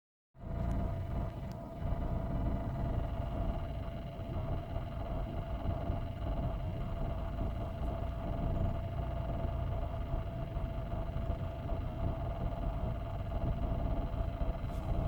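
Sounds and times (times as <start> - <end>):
car engine running: 0.4 - 15.0.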